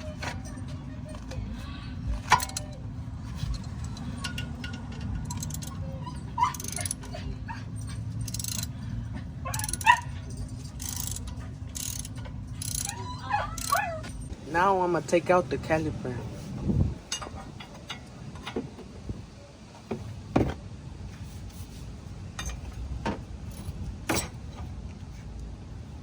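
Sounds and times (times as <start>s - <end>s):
steady low hum: 0.0s - 26.0s
dog whimpering and yelping: 5.2s - 8.8s, 9.4s - 12.0s, 12.6s - 14.3s
clicking tool noise: 10.8s - 12.9s.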